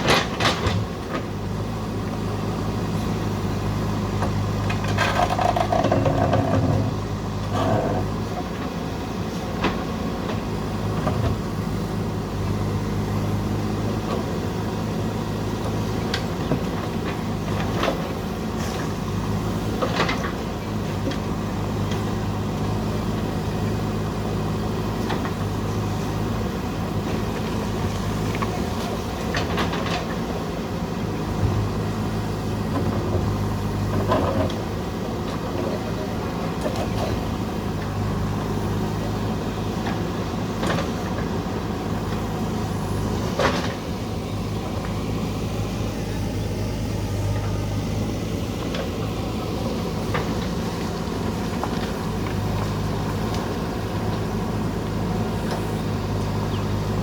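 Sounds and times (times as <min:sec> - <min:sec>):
backhoe diesel engine running: 0:00.0 - 0:57.0
sharp clanks and knocks: 0:04.7 - 0:06.9.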